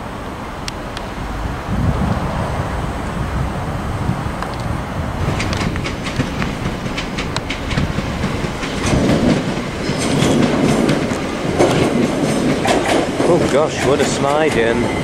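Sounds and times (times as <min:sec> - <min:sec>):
train rumble: 0:00.0 - 0:15.0
train wheels clicking over rail joints: 0:04.4 - 0:15.0.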